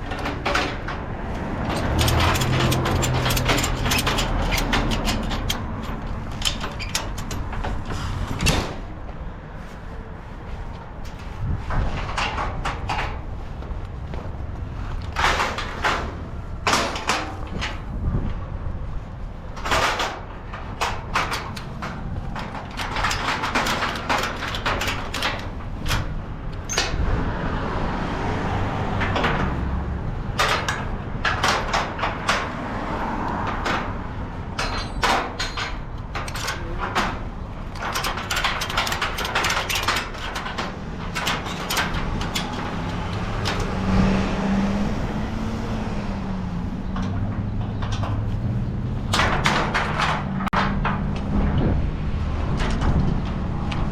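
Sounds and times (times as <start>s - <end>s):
clicks knocks and rattles: 0.0s - 8.9s, 14.9s - 17.9s, 19.6s - 27.0s, 28.8s - 44.1s, 46.8s - 51.8s, 52.4s - 53.9s
vehicle humming: 0.0s - 53.9s.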